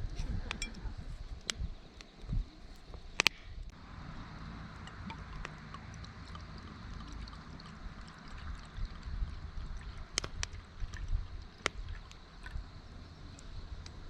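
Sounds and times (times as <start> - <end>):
wood campfire crackling: 0.0 - 14.0
low steady rumble: 3.6 - 14.0.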